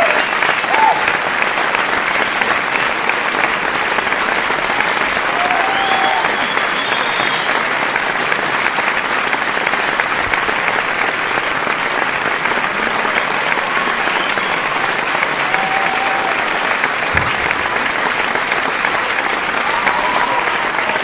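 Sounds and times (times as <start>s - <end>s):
crowd applauding: 0.0s - 21.0s.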